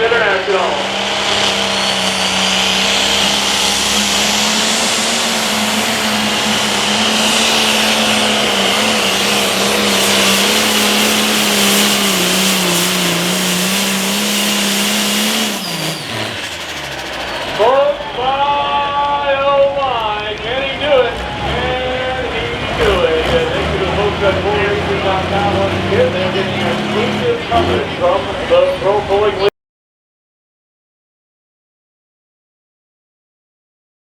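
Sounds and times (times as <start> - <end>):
diesel tractor engine under load: 0.0 - 29.5
high turbo whistle: 0.4 - 19.0.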